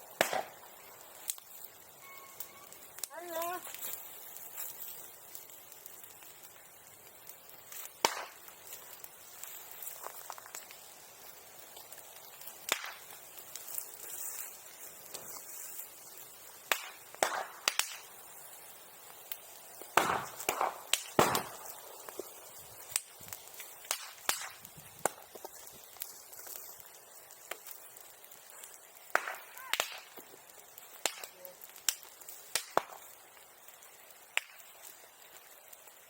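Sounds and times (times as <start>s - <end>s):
bonfire sharp pops: 0.0s - 36.0s.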